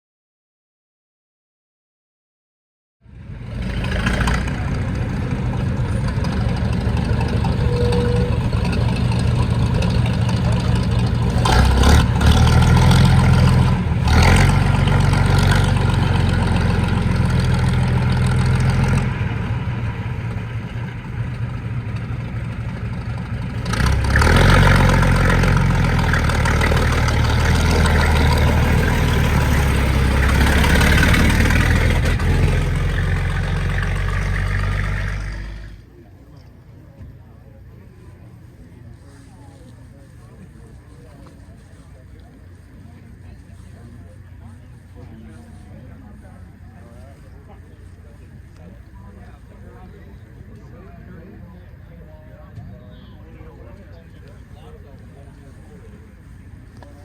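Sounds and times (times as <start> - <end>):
fire engine idling: 3.7 - 57.0.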